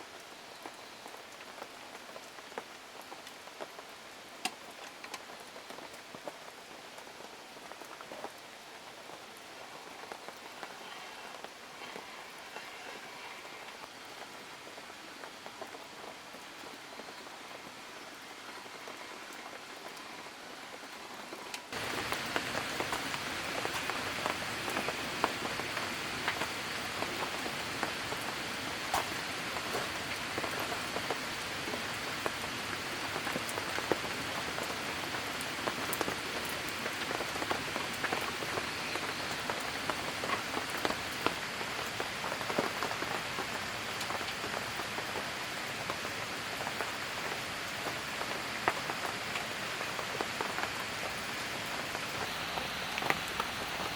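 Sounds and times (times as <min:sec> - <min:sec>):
rain drops tapping: 0:00.1 - 0:53.9.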